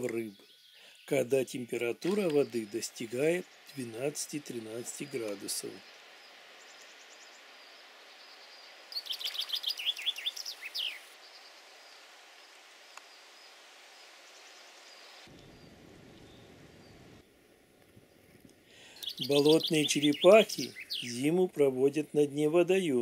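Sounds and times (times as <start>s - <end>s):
songbird singing high notes: 0.0s - 11.5s, 18.9s - 21.4s
faint outdoor hiss: 0.0s - 23.0s.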